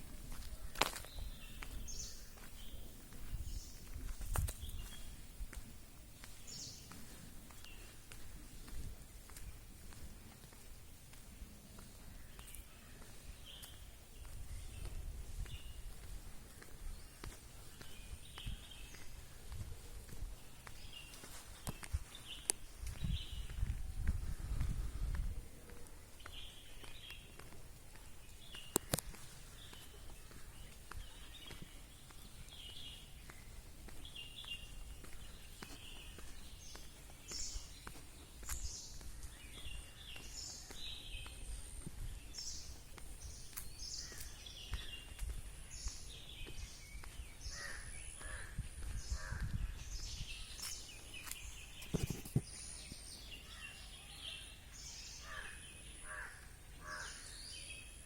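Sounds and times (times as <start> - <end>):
birds chirping: 0.1 - 58.0.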